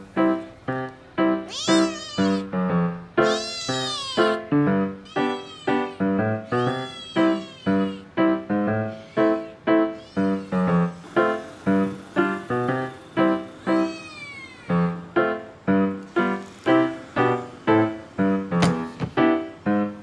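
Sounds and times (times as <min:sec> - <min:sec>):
piano music with steady beat: 0:00.0 - 0:20.0
kitten meowing: 0:01.4 - 0:02.6, 0:03.2 - 0:11.1, 0:13.3 - 0:15.5.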